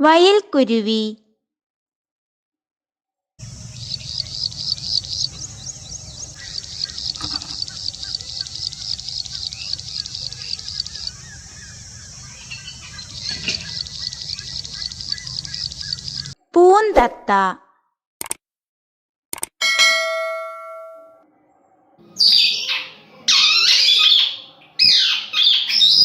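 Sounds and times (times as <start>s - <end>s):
bird call high repeated notes: 3.4s - 16.4s
low steady hum: 3.4s - 16.4s.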